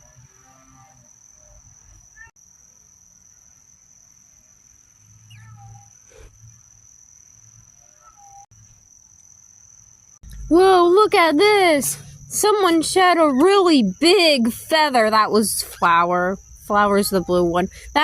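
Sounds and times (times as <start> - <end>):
steady high whine: 10.2 - 18.0.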